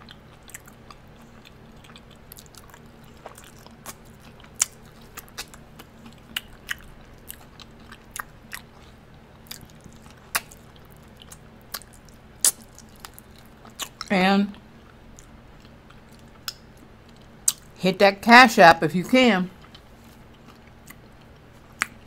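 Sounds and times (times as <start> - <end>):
chewing and lip-smacking: 0.0 - 17.8, 19.5 - 22.0
faint steady hum: 0.0 - 22.0.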